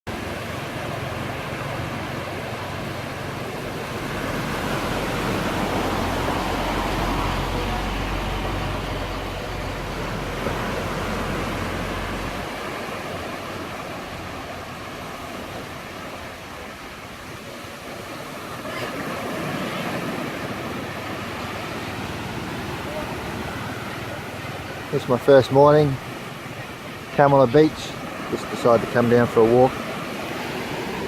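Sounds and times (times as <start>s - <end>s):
vehicle passing on road: 0.1s - 15.2s.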